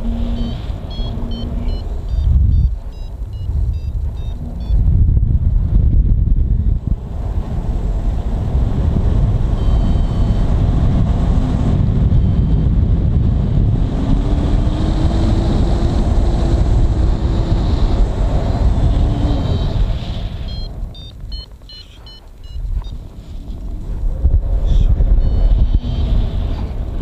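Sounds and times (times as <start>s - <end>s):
faint high beeps: 0.0s - 4.8s, 9.5s - 10.5s, 20.4s - 23.1s
wind buffeting microphone: 0.0s - 27.0s.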